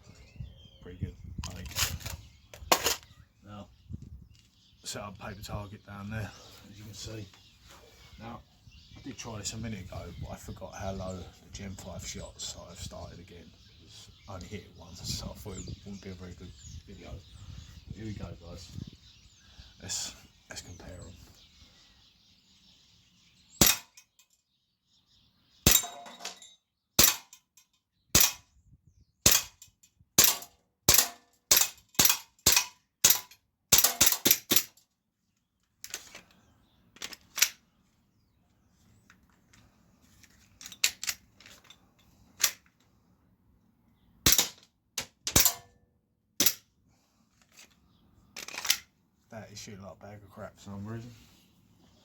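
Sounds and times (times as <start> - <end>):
bb pistol shots: 23.6 - 24.0, 25.6 - 26.3, 27.0 - 27.3, 28.1 - 28.4, 29.2 - 29.6, 30.2 - 34.7, 44.2 - 44.6, 45.3 - 45.7.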